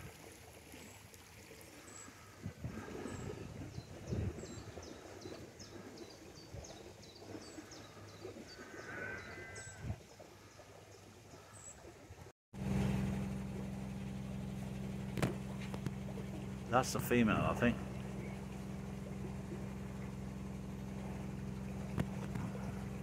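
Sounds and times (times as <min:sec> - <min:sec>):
small birds chirping: 0:01.7 - 0:12.0, 0:15.3 - 0:20.2
low electric hum: 0:01.8 - 0:23.0.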